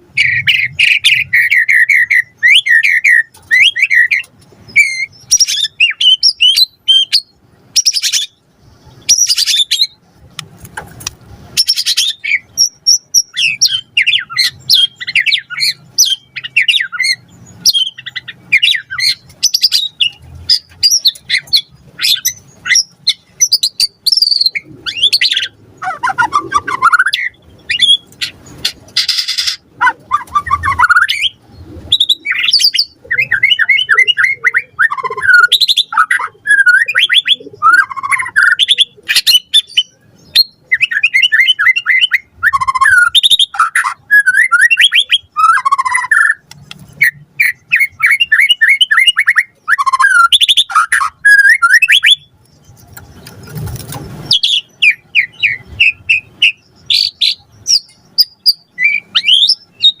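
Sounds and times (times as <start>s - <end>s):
songbird singing trills and whistles: 0.0s - 10.1s, 11.6s - 60.0s
harsh rasping bird call: 24.5s - 31.4s.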